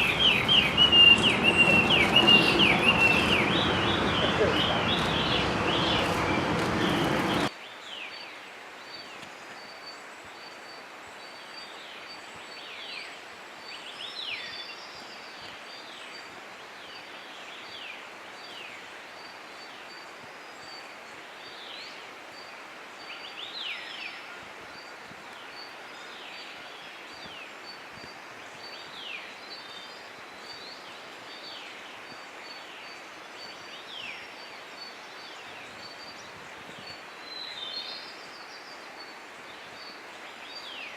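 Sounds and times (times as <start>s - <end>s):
birds calling: 0.0s - 7.5s.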